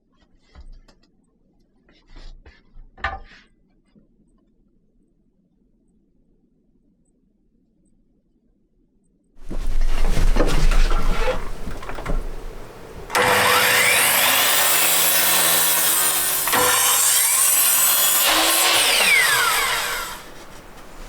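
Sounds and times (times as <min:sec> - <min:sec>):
handling noise: 0:09.4 - 0:14.4, 0:18.2 - 0:21.0
power saw cutting wood: 0:09.5 - 0:21.0.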